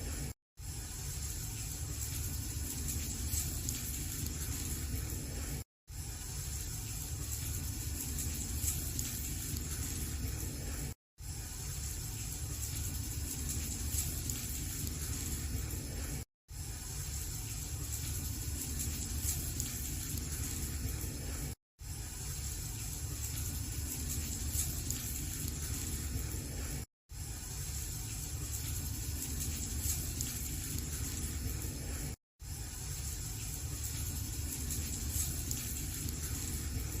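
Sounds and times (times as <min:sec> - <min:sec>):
faint fire crackles: 0:00.0 - 0:37.0
wood fire hissing and rumbling: 0:00.0 - 0:37.0.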